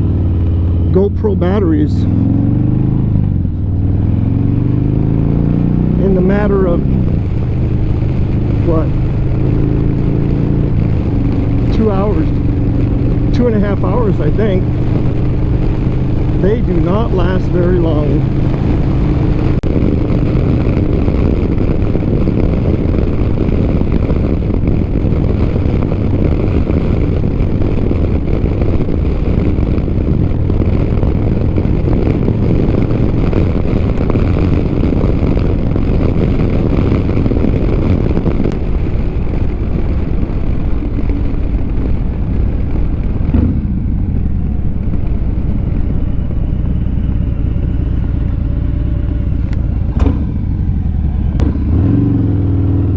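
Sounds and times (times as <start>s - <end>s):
motorcycle engine running: 0.0s - 52.9s
wind rush on microphone: 0.0s - 52.9s.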